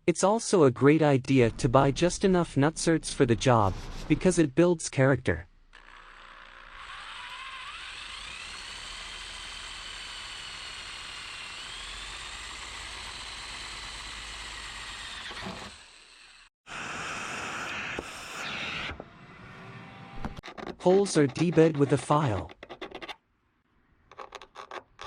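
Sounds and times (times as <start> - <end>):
power drill drilling sheet metal: 5.7 - 16.5.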